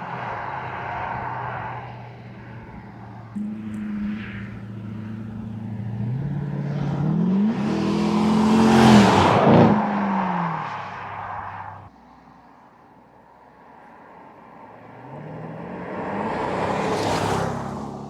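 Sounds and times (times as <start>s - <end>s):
car engine accelerating past: 3.4s - 10.9s, 14.8s - 18.0s.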